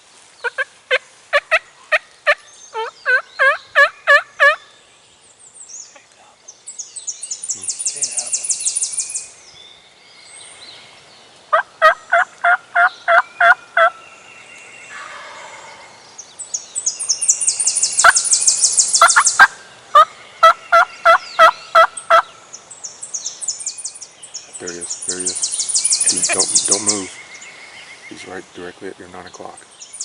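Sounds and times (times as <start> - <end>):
turkey yelping: 0.5 - 4.6, 11.5 - 14.0, 14.9 - 15.8, 19.0 - 22.3.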